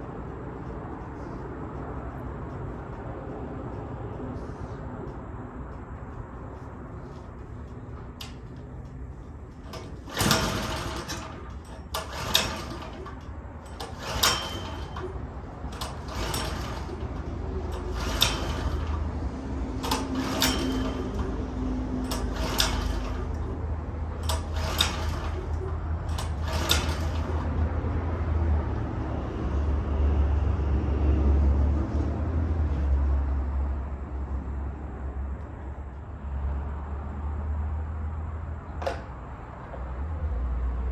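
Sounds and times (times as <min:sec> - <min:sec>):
lawnmower starter rope pulls: 0:07.0 - 0:28.5.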